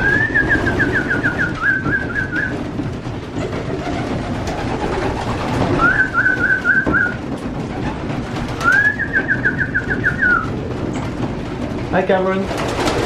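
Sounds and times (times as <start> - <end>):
warbling whistled trills: 0.0 - 2.6, 5.7 - 7.2, 8.6 - 10.6
pigeons cooing: 0.0 - 11.2.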